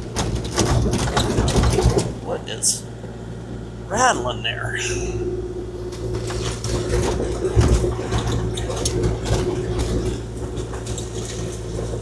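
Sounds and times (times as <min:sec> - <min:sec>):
excavator diesel engine running: 0:01.3 - 0:06.6.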